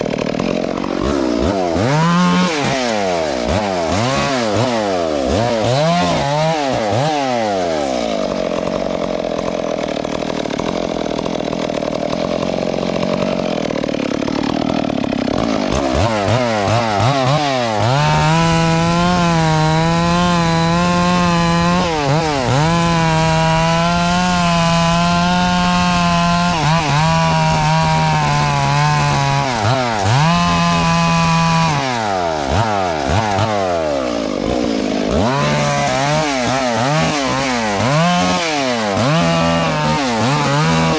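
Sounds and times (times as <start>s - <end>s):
chainsaw engine revving: 0.0s - 40.9s.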